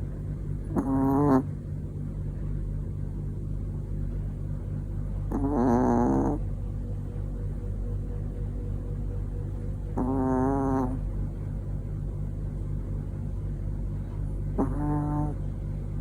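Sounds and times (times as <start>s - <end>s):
steady low hum: 0.0s - 16.0s
dog snoring: 0.6s - 1.6s, 5.2s - 6.6s, 9.9s - 11.2s, 14.5s - 15.6s.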